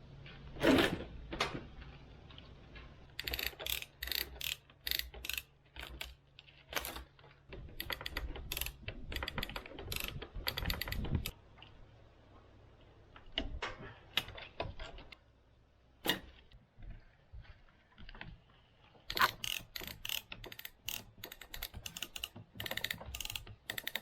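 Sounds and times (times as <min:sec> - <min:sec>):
ratchet tool clicking: 0:03.2 - 0:06.2, 0:07.8 - 0:11.3, 0:19.1 - 0:24.0.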